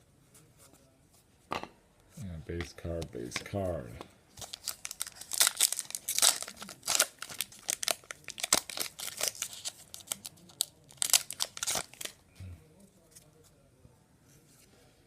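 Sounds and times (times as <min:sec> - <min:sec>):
wrapper crinkling and tearing: 0:04.4 - 0:12.2.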